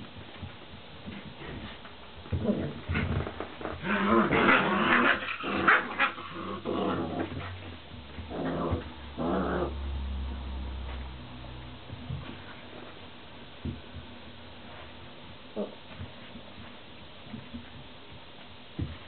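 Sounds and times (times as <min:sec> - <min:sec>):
puppies growling: 0:02.3 - 0:10.3.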